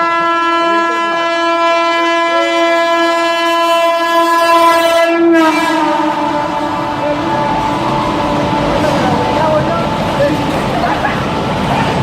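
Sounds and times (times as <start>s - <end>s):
train horn blast: 0.0s - 10.1s
moving train rumbling: 0.0s - 12.0s.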